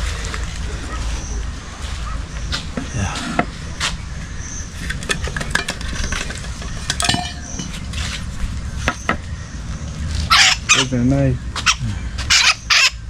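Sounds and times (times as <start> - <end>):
metal pots clinking: 4.9 - 8.0.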